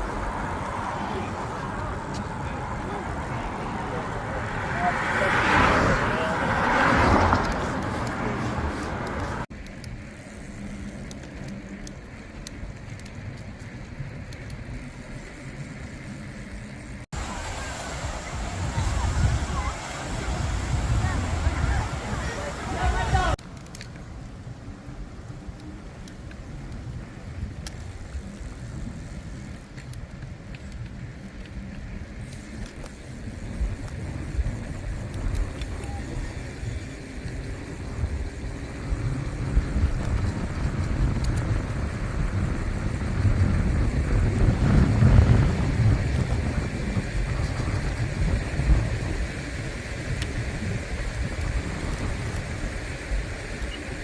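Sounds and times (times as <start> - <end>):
vehicle passing: 0.0 - 11.8, 14.6 - 23.4
motor traffic: 0.0 - 54.0
steady road rumble: 0.0 - 54.0
faint clicks: 8.8 - 14.8
light ticks: 10.7 - 14.6, 39.8 - 41.6.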